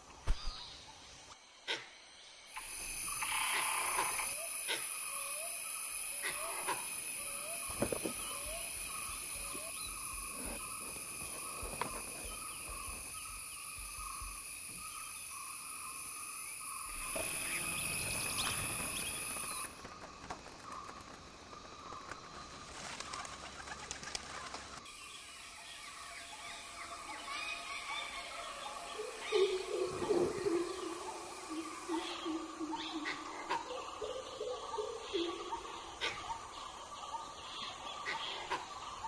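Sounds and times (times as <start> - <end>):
insects buzzing: 0.0 - 39.0
bird calls: 2.6 - 39.0
flock of birds wingbeats: 17.1 - 24.9.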